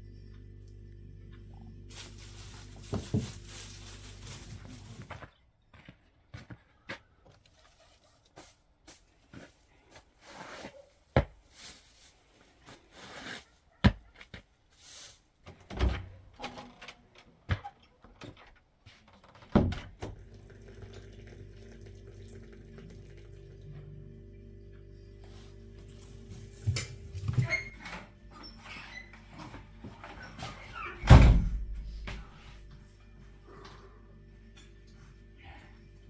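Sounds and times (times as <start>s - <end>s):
household knocks and clatters: 2.1s - 5.1s
background music drone: 32.7s - 36.0s.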